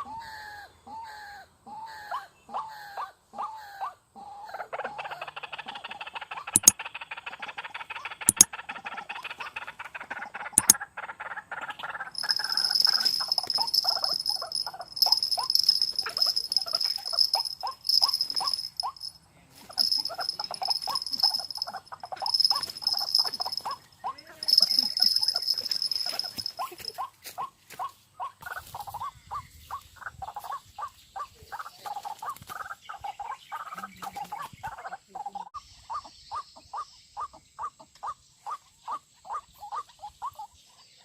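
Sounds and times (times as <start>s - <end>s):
sharp clicks: 12.2s - 19.1s, 19.7s - 23.8s, 24.4s - 26.6s.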